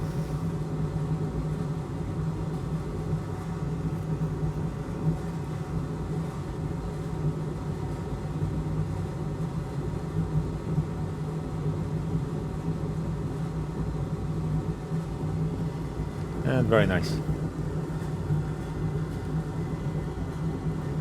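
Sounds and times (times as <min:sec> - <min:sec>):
electric fan humming: 0:15.6 - 0:17.5.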